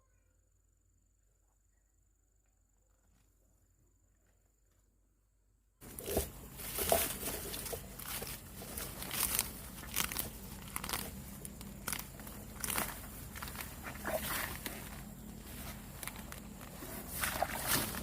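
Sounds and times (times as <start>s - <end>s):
vegetation rustling and crunching: 5.8s - 18.0s
sharp crackles: 6.0s - 18.0s.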